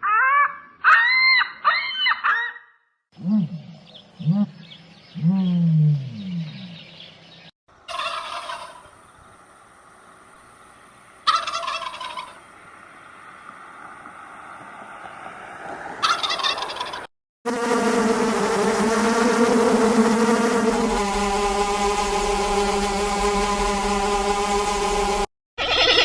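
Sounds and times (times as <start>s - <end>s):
turkey gobbling: 0.0s - 2.6s, 7.9s - 8.9s, 11.2s - 12.5s, 16.0s - 17.1s, 25.6s - 26.0s.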